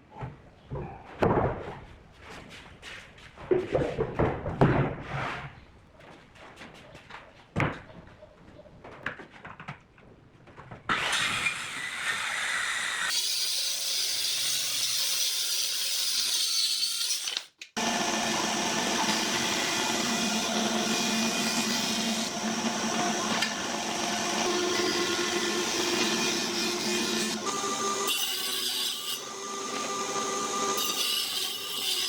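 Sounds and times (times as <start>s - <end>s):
power tool working wood: 10.9s - 15.2s, 16.2s - 32.0s.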